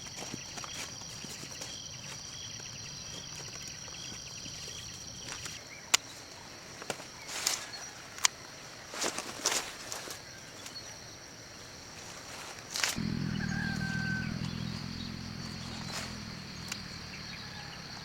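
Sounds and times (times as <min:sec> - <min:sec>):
high-pitched insect drone: 0:13.0 - 0:18.0.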